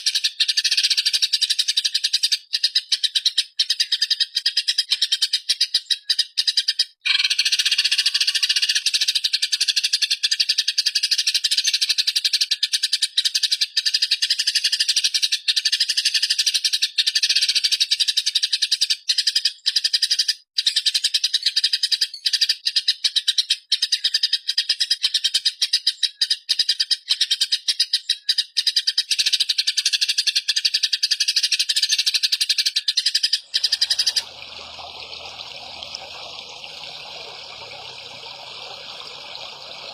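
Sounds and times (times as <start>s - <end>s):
buzzing bird chatter: 33.5s - 39.9s.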